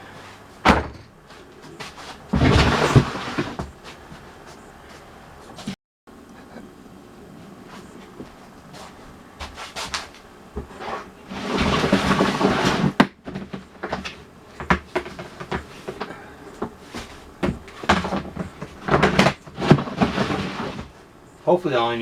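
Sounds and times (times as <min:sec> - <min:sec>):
knocks and clunks: 0:00.6 - 0:03.9.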